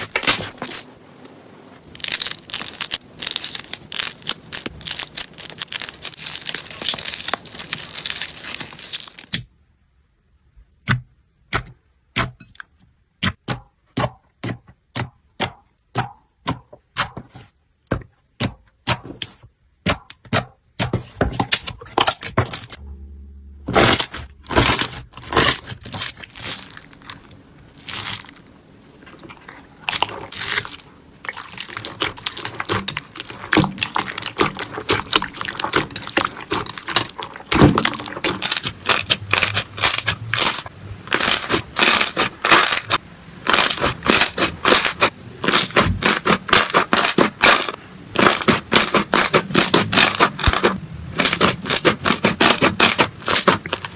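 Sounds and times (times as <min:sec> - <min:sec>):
slime crackling and popping: 0:01.8 - 0:09.4, 0:23.7 - 0:53.9.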